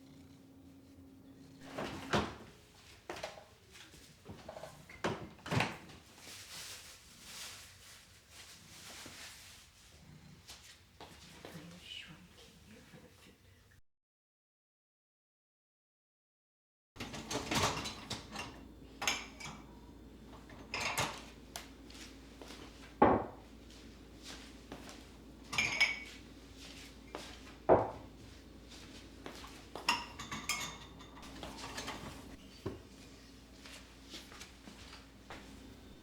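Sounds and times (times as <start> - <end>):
dishes and cutlery clinking: 17.0 - 23.4, 24.2 - 32.9.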